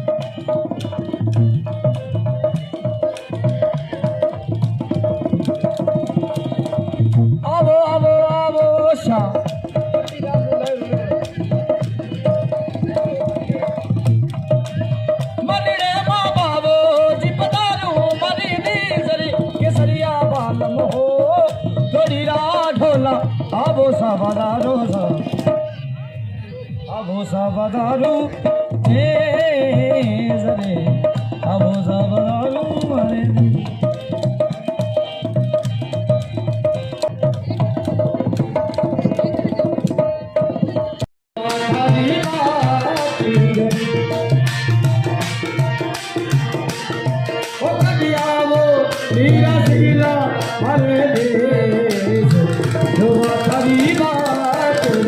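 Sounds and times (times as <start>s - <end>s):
hand drum beating: 0.0s - 26.0s, 27.9s - 55.0s
folk melody: 29.5s - 55.0s.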